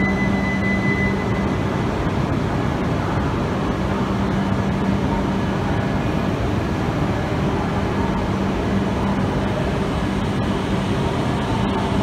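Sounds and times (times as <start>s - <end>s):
low hum: 0.0s - 6.2s.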